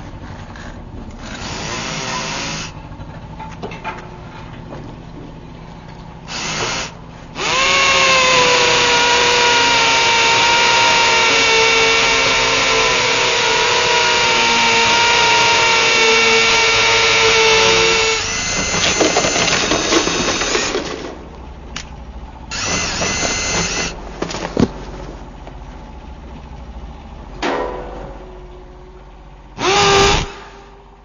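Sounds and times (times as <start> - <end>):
electric drill whining: 1.2 - 2.8, 6.3 - 20.8, 22.5 - 24.0, 29.6 - 30.7.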